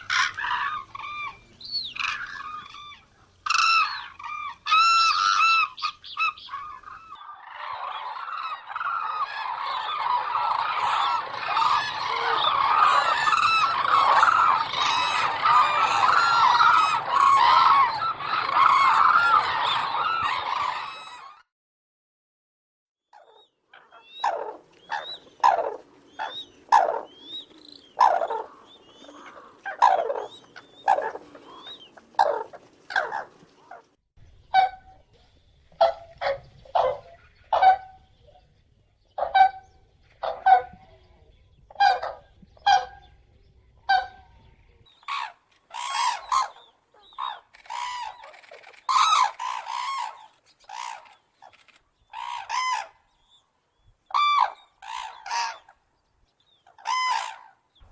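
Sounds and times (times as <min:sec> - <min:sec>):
cranes calling: 0:00.0 - 0:21.4, 0:23.2 - 0:33.8, 0:45.0 - 0:53.4, 0:54.1 - 0:55.8, 0:56.6 - 0:57.9.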